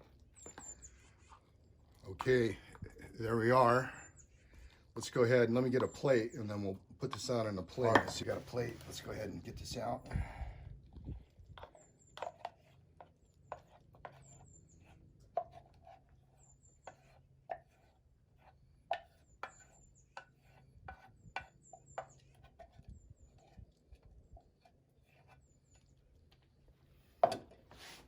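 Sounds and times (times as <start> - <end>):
utensil scraping in metal cup: 7.1 - 10.0, 11.1 - 26.0.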